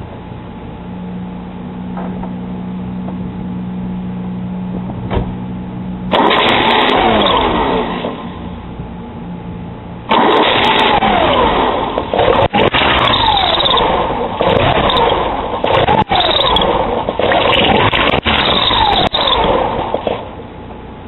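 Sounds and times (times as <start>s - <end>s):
car engine cranking on starter: 6.1s - 8.4s, 10.1s - 20.4s.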